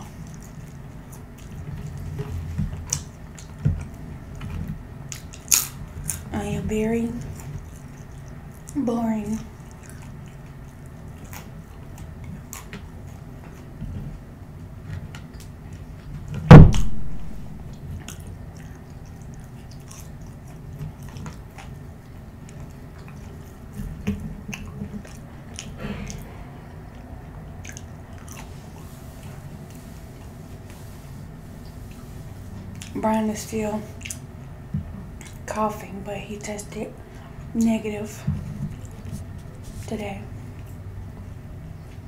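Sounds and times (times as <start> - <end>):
chewing french fries: 0.0 - 16.4, 17.6 - 42.0
loud thump: 16.5 - 17.4, 25.8 - 26.6
wet mouth clicks and smacks: 34.0 - 34.3.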